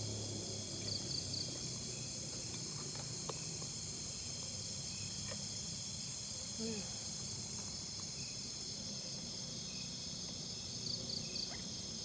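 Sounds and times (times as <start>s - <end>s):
crickets and night insects: 0.0s - 12.0s.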